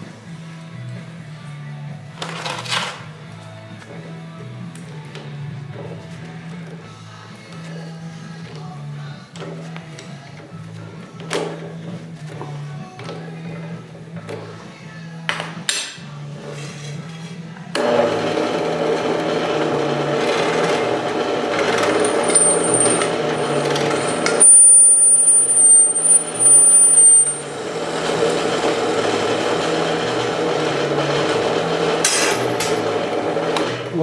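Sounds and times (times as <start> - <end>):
electric drill boring: 17.8 - 34.0
high squeal from drill bit: 20.2 - 31.2.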